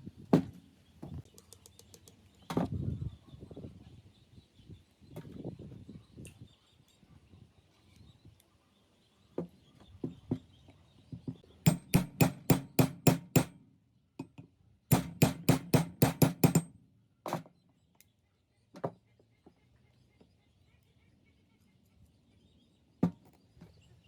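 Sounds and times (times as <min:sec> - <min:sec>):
hammer striking metal: 0:11.7 - 0:13.6, 0:14.9 - 0:16.7.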